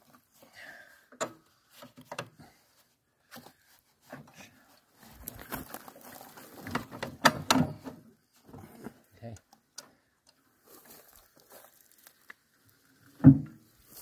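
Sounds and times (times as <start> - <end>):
knocks and clicks of tools: 6.7 - 7.9.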